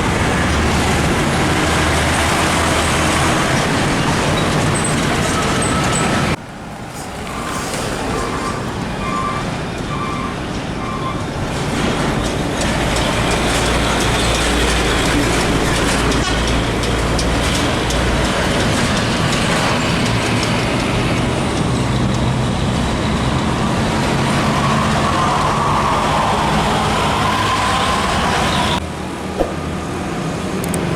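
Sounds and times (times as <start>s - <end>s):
diesel trucks driving past: 0.0s - 30.9s
tyre noise: 4.6s - 16.8s.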